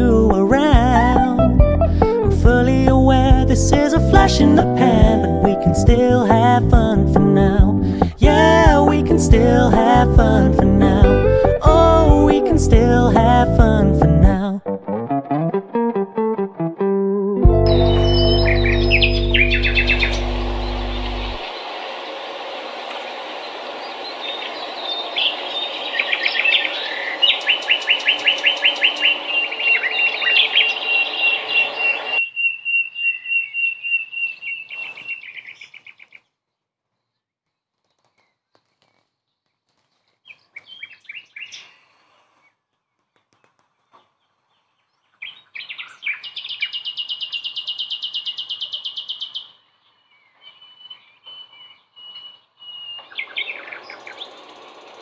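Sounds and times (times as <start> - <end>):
songbirds chirping and trilling: 17.7 - 37.2, 38.0 - 55.0.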